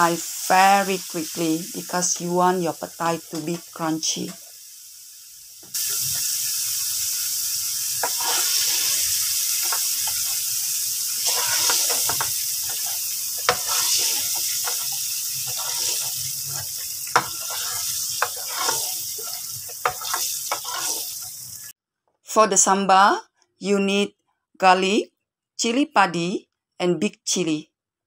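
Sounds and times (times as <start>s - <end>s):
beans sizzling in hot oil: 0.0s - 21.8s
spatula scraping pan: 8.0s - 10.5s, 11.1s - 21.6s.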